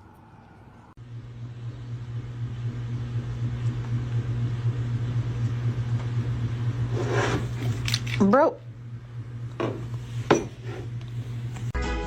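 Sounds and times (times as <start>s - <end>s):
low motor hum: 0.0s - 11.8s.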